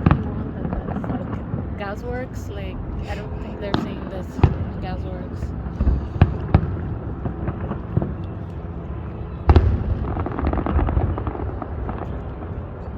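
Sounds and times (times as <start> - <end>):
loud deep firework boom: 9.5 - 12.0.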